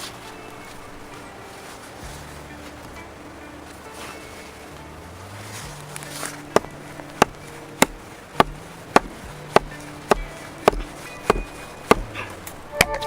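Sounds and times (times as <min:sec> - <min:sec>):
tool striking wood: 0:06.5 - 0:12.2.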